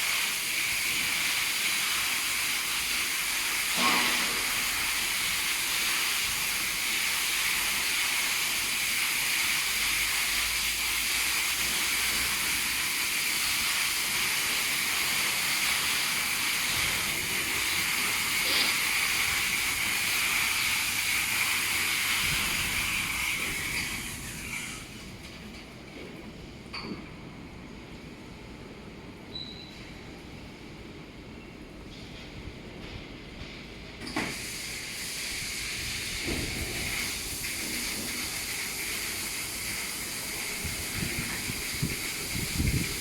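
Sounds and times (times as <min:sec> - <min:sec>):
water jets spraying with hiss: 0:00.0 - 0:25.4, 0:34.0 - 0:43.0.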